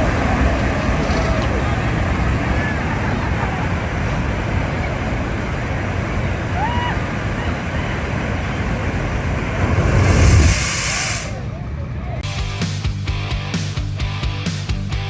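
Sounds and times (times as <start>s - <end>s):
wind on microphone: 0.0s - 12.0s
rising tone: 8.8s - 12.1s.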